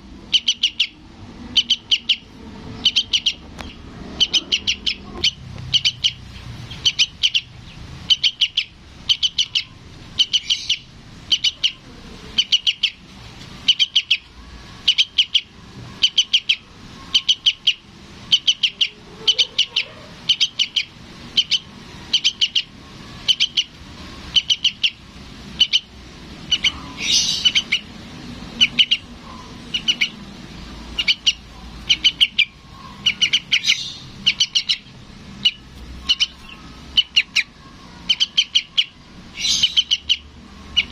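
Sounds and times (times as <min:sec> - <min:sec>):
harsh bird call: 0:00.3 - 0:40.9
young bird begging chirps: 0:00.3 - 0:40.9.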